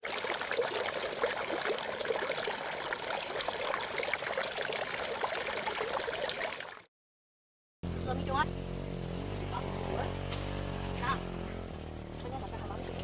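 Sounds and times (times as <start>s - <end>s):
water running and trickling: 0.0s - 6.9s.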